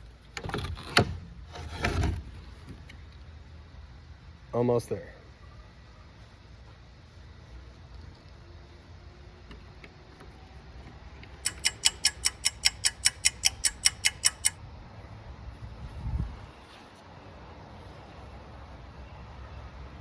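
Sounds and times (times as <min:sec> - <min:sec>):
screwdriver clicking: 0:11.4 - 0:14.6.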